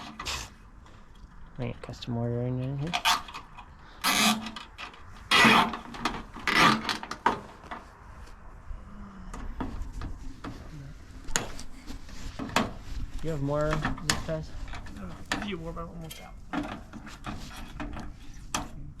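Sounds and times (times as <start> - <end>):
rasping handling noises: 2.8 - 8.4, 9.4 - 19.0
rustling: 9.7 - 18.6.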